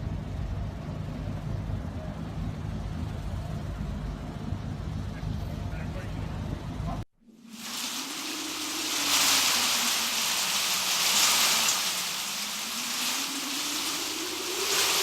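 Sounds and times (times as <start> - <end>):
heavy rain: 7.4 - 15.0
hurricane wind: 7.4 - 15.0.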